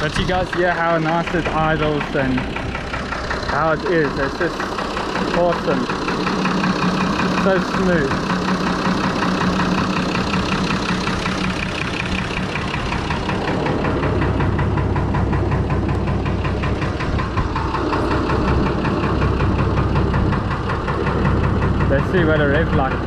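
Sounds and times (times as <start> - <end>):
deep low rumble: 0.0 - 23.0
tractor diesel engine idling: 0.0 - 23.0.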